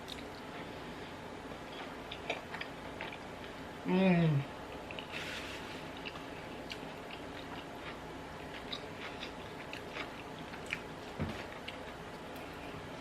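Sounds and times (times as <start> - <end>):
chewing food: 1.7 - 3.5, 5.8 - 12.8.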